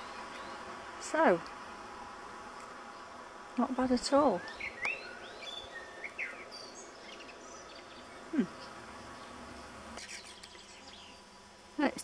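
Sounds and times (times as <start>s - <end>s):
faint steady hum: 0.0s - 12.0s
high bird chirps: 4.4s - 8.2s.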